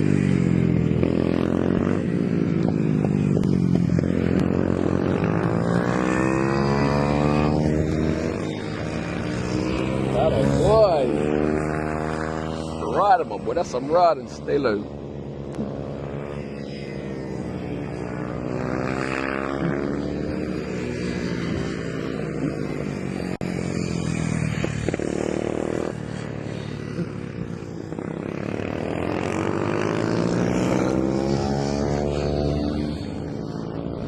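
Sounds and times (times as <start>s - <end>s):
minibike engines revving: 0.0s - 34.0s.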